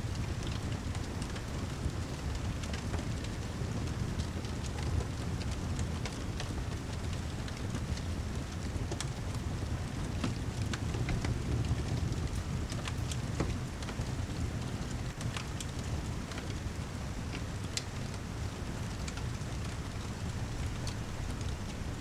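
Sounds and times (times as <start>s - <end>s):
rain: 0.0s - 22.0s
fire crackling: 0.1s - 22.0s.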